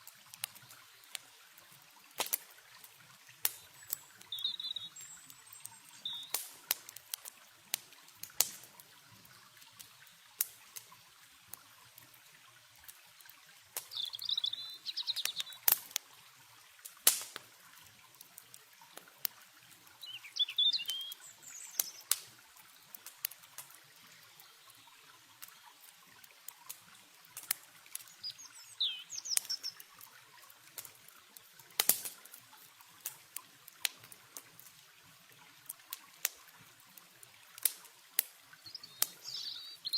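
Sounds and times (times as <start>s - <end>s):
campfire crackling and popping: 0.0s - 39.9s
faint trickle of river water: 0.0s - 39.9s
small birds chirping: 3.5s - 6.4s, 13.8s - 15.8s, 19.9s - 23.0s, 27.9s - 30.0s, 38.6s - 39.9s.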